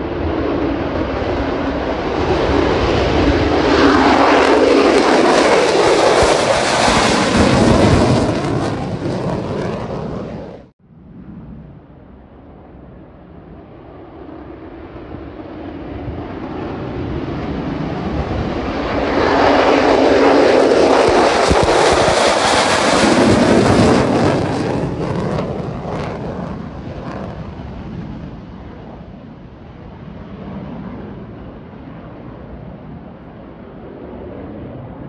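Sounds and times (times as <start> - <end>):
jet engine passing: 0.0 - 35.0
jet engine crackle: 3.0 - 10.7, 18.7 - 29.0.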